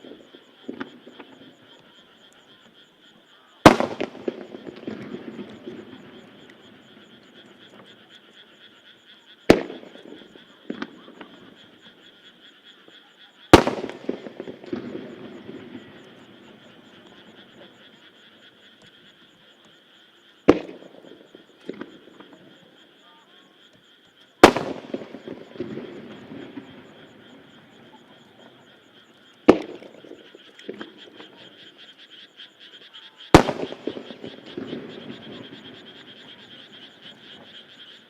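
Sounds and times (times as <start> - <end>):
firework shells booming: 0.0 - 1.9, 3.6 - 8.0, 9.5 - 12.0, 13.5 - 19.7, 20.4 - 22.6, 24.4 - 31.8, 33.3 - 38.0
firework crackling tails: 3.6 - 8.0, 9.5 - 12.0, 13.5 - 19.2, 20.4 - 22.5, 24.4 - 31.8, 33.3 - 38.0.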